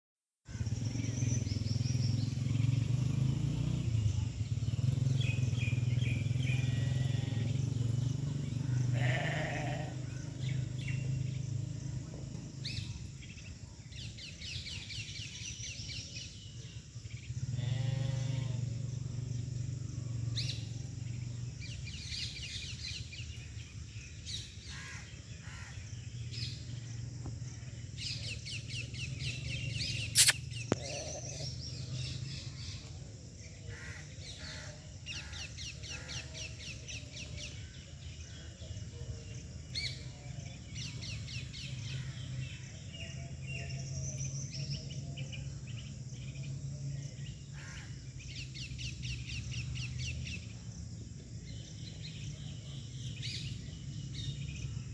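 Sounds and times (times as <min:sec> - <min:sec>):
small birds twittering: 0:00.5 - 0:54.9
sharp click: 0:30.2 - 0:30.9.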